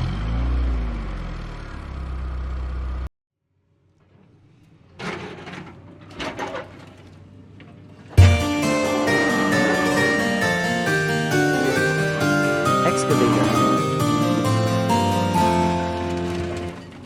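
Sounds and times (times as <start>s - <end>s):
vehicle engine revving: 0.0s - 3.1s
keyboard music: 8.2s - 17.0s.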